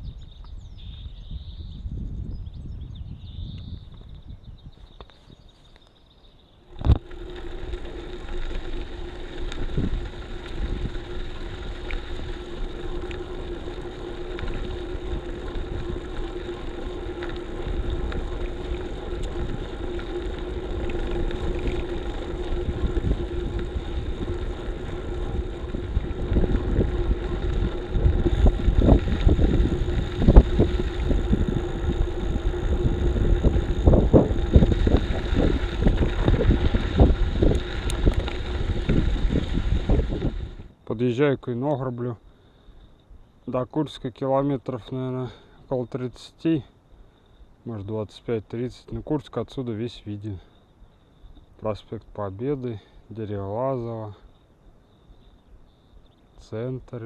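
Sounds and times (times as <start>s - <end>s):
wind buffeting microphone: 0.0s - 5.5s, 6.7s - 40.8s
steady hum: 6.6s - 40.8s
tyre and road rumble: 6.7s - 40.8s.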